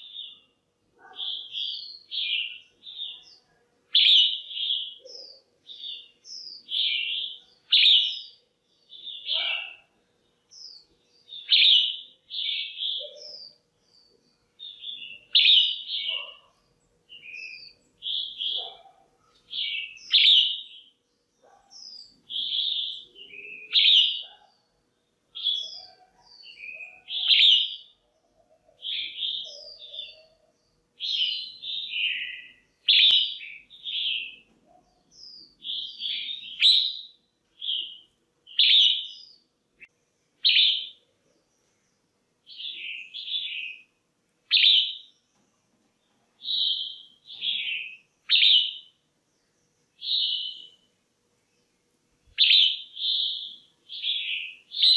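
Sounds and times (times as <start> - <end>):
bulbul chirpy calls: 0.0 - 8.4, 9.0 - 10.0, 14.6 - 20.9, 21.5 - 24.7, 25.4 - 41.0, 46.4 - 48.9, 52.4 - 54.9.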